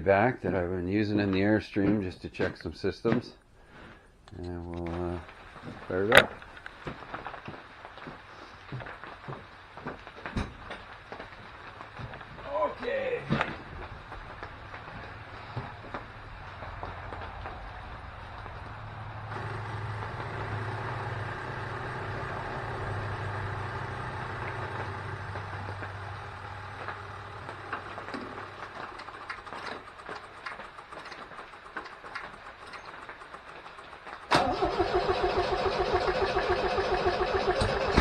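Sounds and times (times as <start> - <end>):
car engine starting and running fast: 17.9 - 38.0
clicks and knocks: 26.8 - 34.3.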